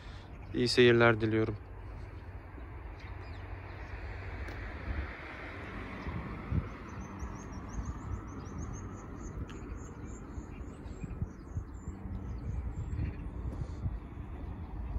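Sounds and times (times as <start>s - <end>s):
low outdoor rumble: 0.0s - 14.9s
small bird chirping: 6.6s - 13.8s.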